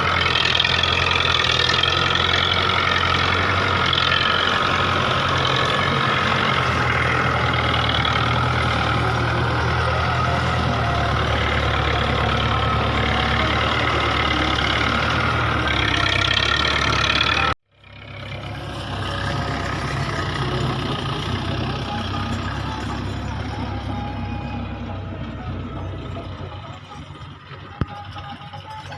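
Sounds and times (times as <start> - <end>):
tractor diesel engine running: 0.0 - 28.9.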